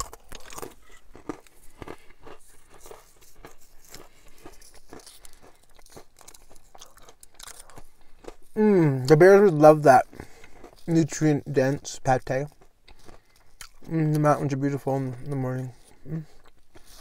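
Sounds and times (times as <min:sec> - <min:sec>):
person chewing crackers: 0:00.0 - 0:17.0.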